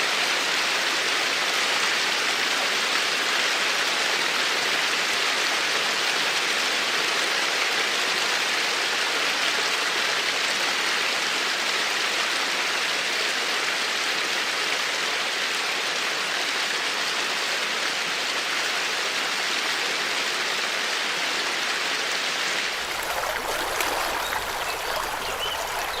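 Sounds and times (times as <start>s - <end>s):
rushing water: 22.7s - 26.0s.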